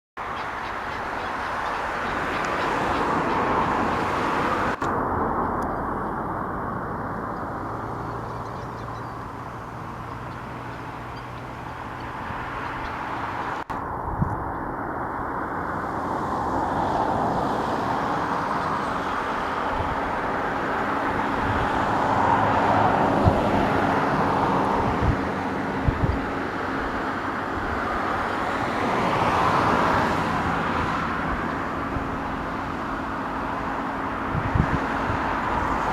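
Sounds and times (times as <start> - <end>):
rushing noise: 0.2 - 8.5.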